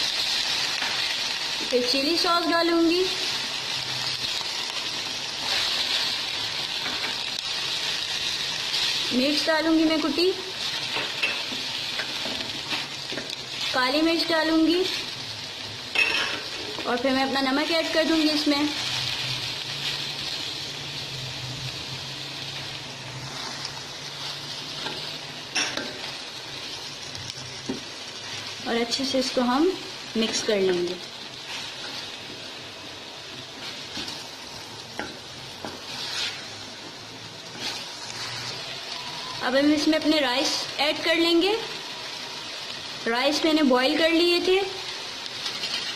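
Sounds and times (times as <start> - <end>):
vegetables sizzling in oil: 0.0 - 45.9.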